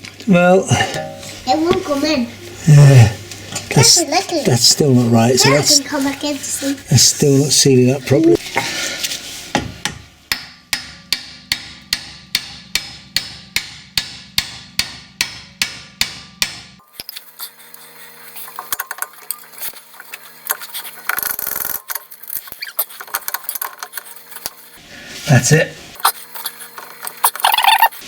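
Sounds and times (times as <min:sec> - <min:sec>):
metal parts clicking and rattling: 0:20.5 - 0:24.1.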